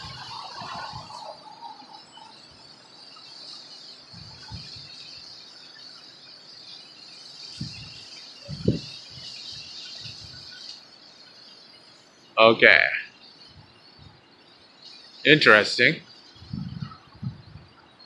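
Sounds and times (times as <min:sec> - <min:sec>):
wind buffeting microphone: 0:00.0 - 0:02.0, 0:04.0 - 0:05.4, 0:07.5 - 0:10.6, 0:13.4 - 0:14.3, 0:16.3 - 0:18.0
insect chorus: 0:00.0 - 0:18.0.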